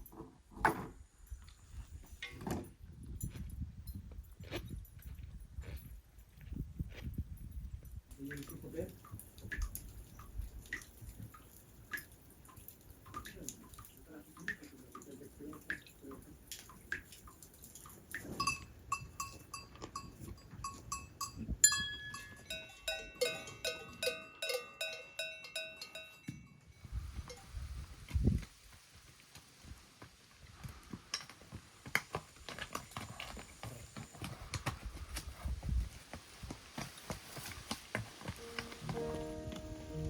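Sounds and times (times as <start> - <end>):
cowbells clanking: 18.2 - 26.7, 38.4 - 40.0.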